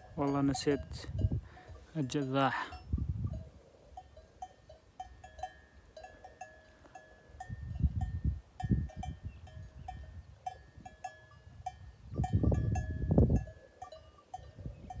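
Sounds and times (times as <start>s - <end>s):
wind rumble on microphone: 0.0s - 1.8s, 2.7s - 3.6s, 7.4s - 15.0s
sheep bells clinking: 0.0s - 15.0s.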